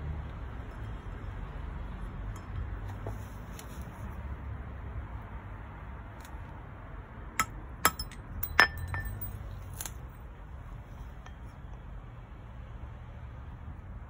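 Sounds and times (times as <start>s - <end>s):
hammer tapping metal ring: 7.4s - 9.4s.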